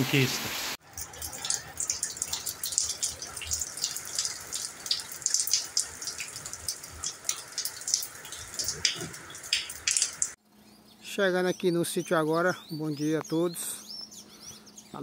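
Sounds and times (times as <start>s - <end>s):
raindrops on wet concrete: 0.4s - 10.4s.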